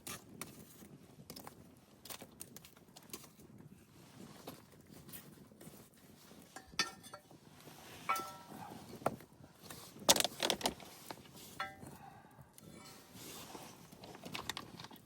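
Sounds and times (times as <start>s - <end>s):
knocks and clinks of hard objects: 6.6s - 7.3s, 8.1s - 8.7s, 11.6s - 12.0s.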